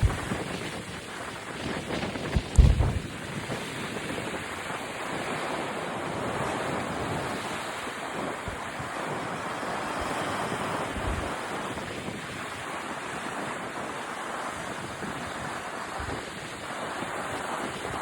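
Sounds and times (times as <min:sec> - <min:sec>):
sea waves washing onto beach: 0:00.0 - 0:18.0
wind buffeting microphone: 0:00.0 - 0:18.0.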